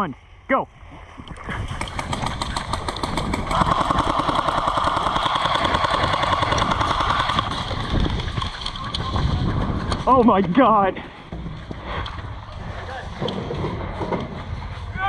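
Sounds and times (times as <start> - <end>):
airsoft guns firing rapidly: 1.7 - 9.6
mechanical whir of guns: 1.8 - 10.0.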